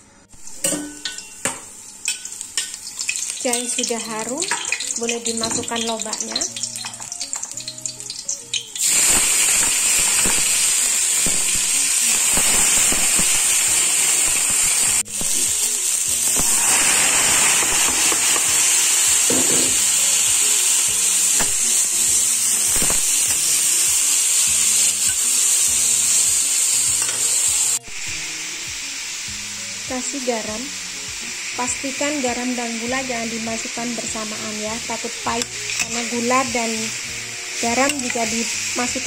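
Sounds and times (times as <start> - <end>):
food sizzling in oil: 0.4 - 39.0.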